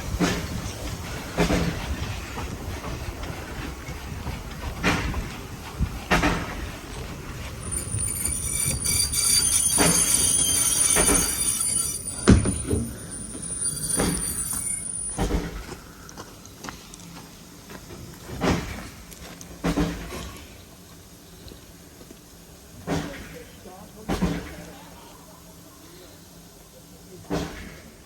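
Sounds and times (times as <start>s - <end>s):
wheels knocking over rail joints: 7.4s - 15.5s
high-pitched wheel squeal: 7.6s - 15.5s.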